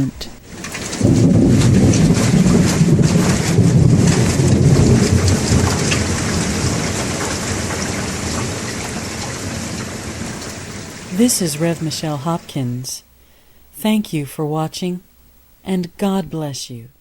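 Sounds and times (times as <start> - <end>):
thunder rolling: 0.0 - 12.0
raindrops ticking: 0.0 - 12.5
heavy rain: 0.0 - 13.4.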